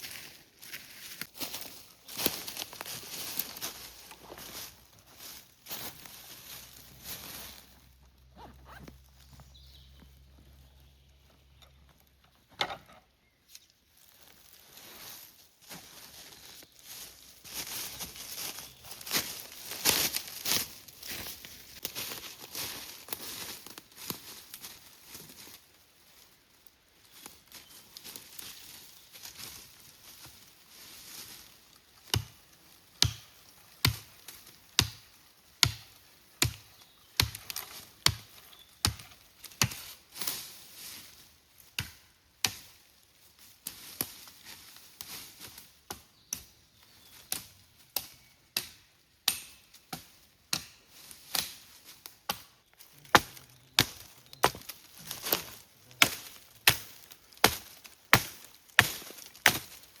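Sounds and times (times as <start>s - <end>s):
chopping into wood: 33.0s - 34.1s, 35.6s - 37.4s, 41.8s - 42.7s, 53.1s - 54.7s, 56.0s - 59.8s.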